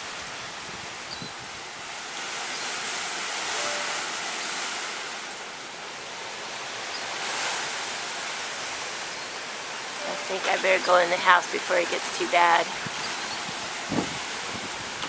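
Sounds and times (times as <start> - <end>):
storm wind and rain: 0.0 - 15.0.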